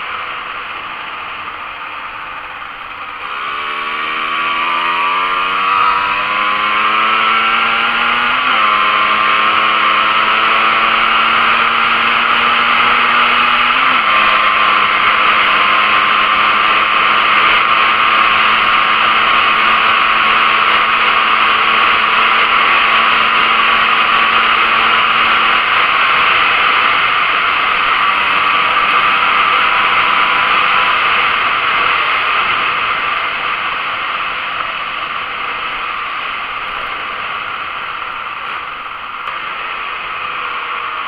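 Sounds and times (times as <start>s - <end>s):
motorcycle engine revving high: 0.0s - 41.0s.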